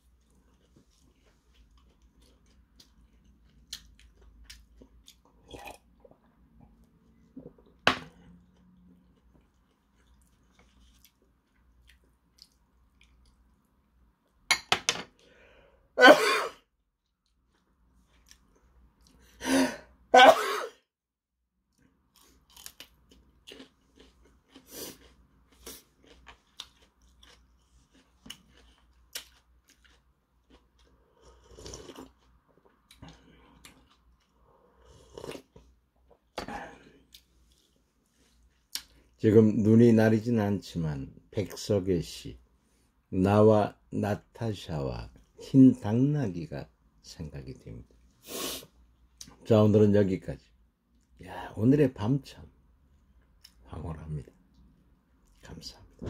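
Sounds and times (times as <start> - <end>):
chewing and crunching: 0.0 - 13.6, 21.7 - 36.4
person coughing: 16.0 - 16.6, 19.4 - 20.8, 36.4 - 36.8.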